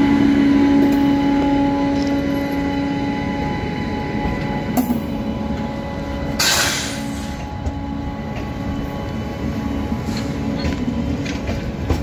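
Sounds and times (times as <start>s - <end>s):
train wheels rumbling on rail: 0.0s - 12.0s
sharp metal clank: 6.4s - 7.0s.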